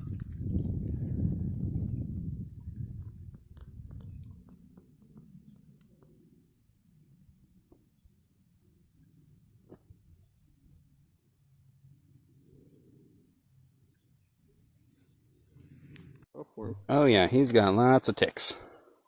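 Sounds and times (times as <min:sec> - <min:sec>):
low rumble: 0:00.0 - 0:04.7.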